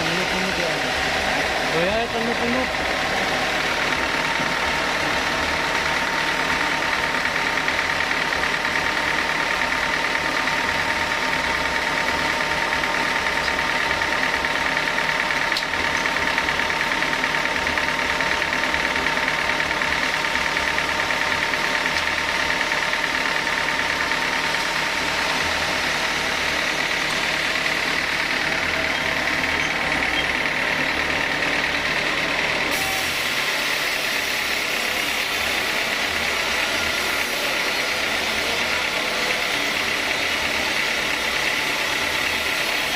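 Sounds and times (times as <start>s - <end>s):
sawmill saw machinery running: 0.0s - 42.9s.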